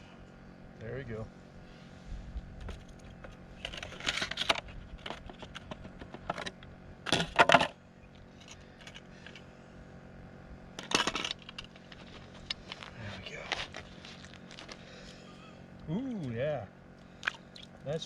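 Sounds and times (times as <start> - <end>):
clinking rattling handling noise: 2.7 - 7.8, 10.8 - 12.9.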